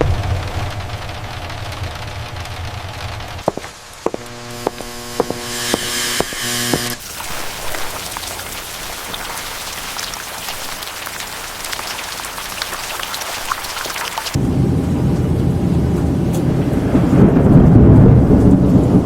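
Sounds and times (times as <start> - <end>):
rain falling: 0.0 - 5.0, 6.8 - 17.2
steady pitched hum with ticks: 0.0 - 7.0.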